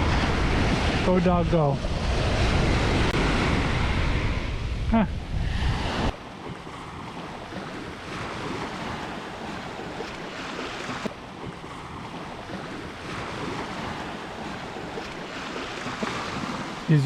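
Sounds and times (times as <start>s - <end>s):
wind on microphone: 0.0s - 16.9s
ocean surf washing onto beach: 0.0s - 17.0s.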